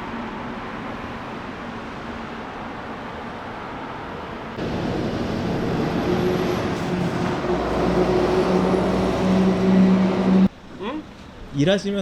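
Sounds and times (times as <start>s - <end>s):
road noise: 0.0s - 11.7s
vehicle engine humming: 4.6s - 10.5s.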